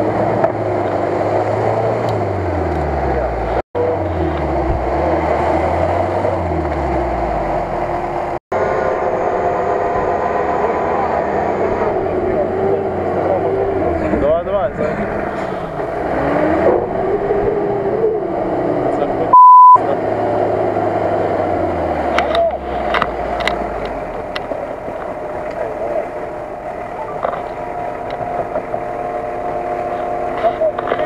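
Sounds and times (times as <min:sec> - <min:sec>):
engines idling: 0:00.0 - 0:31.0
voices: 0:09.9 - 0:21.4, 0:22.0 - 0:31.0
censor beep: 0:19.3 - 0:19.8.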